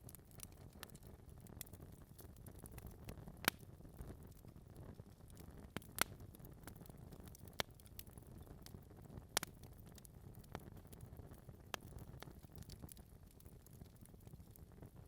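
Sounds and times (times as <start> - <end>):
fire rumbling: 0.0 - 15.0
logs crackling and popping: 0.0 - 15.0.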